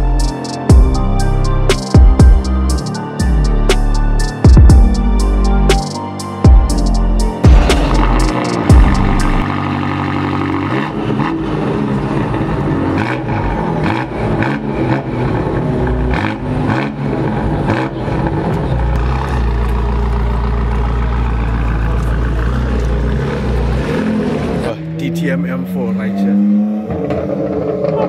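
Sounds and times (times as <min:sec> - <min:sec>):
car engine revving: 0:06.8 - 0:28.0.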